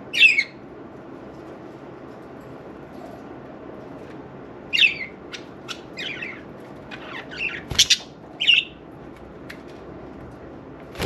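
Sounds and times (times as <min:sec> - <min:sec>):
budgerigars chirping and squawking: 0:00.1 - 0:00.5, 0:04.7 - 0:08.8.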